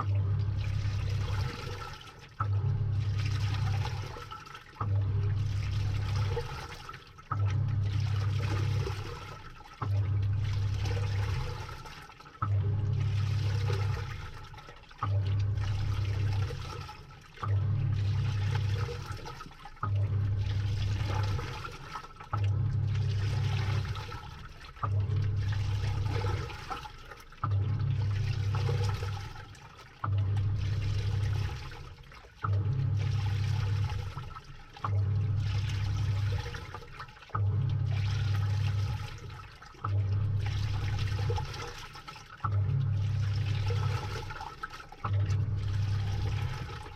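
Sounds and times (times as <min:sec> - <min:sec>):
washing machine motor humming: 0:00.0 - 0:46.9
water and wet clothes sloshing: 0:00.0 - 0:46.9.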